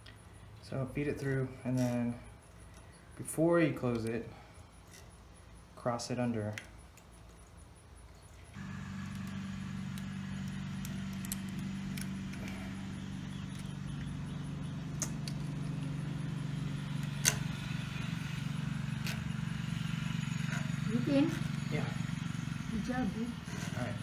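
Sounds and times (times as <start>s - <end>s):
low motor hum: 8.4s - 24.0s
sharp clicks: 8.6s - 16.3s.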